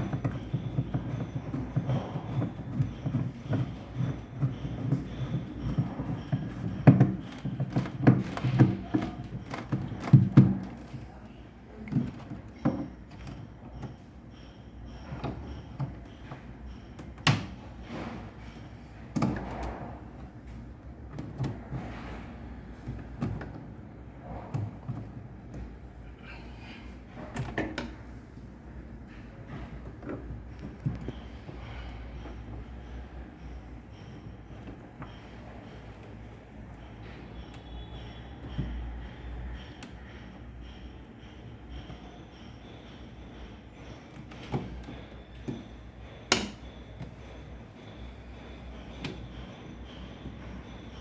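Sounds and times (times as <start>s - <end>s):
tools knocking and clicking: 0.0s - 11.1s, 11.7s - 21.9s, 27.2s - 51.0s.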